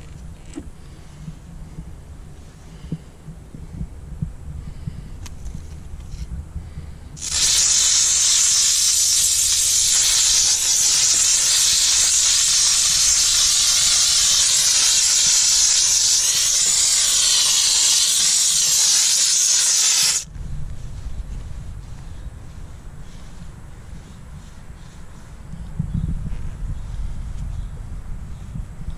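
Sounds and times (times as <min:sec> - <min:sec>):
steam cleaner hissing: 0:07.2 - 0:20.3.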